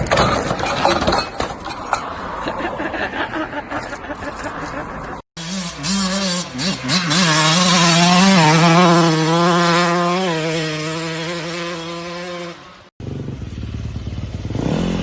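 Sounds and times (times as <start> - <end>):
dirt bike engine revving high: 5.4 - 15.0.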